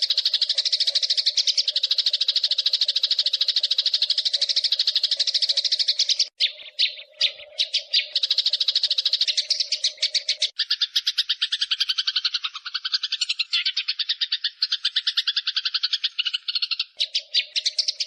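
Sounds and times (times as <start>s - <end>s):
sparrow chattering chirps: 0.0s - 18.0s.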